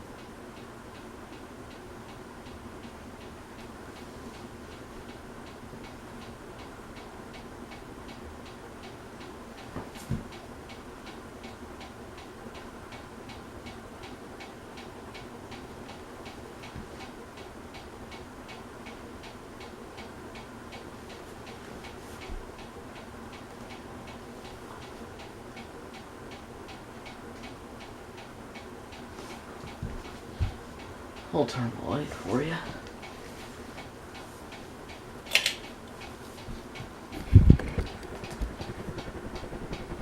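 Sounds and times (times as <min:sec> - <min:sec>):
ceiling fan hum: 0:00.0 - 0:40.0
fan ticking: 0:00.0 - 0:40.0
fan knock: 0:29.7 - 0:30.8, 0:36.4 - 0:40.0.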